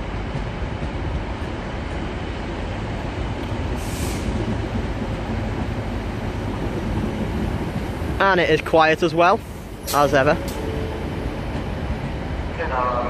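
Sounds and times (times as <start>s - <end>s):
short hiss: 3.8s - 4.4s.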